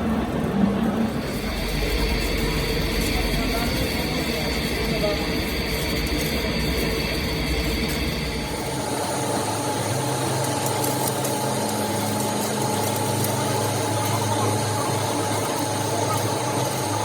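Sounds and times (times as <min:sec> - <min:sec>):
machine humming with whine: 0:00.0 - 0:17.0.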